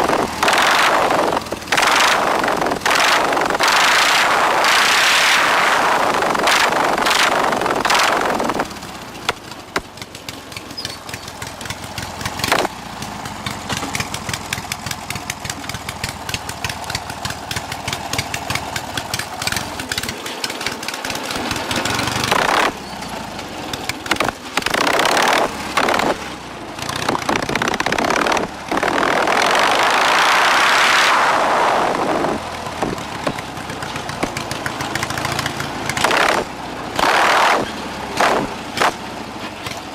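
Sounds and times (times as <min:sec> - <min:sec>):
lawn mower engine idling: 0:00.0 - 0:02.8, 0:06.8 - 0:28.8, 0:32.2 - 0:37.0, 0:37.7 - 0:39.9
lawn mower engine revving: 0:00.0 - 0:39.9.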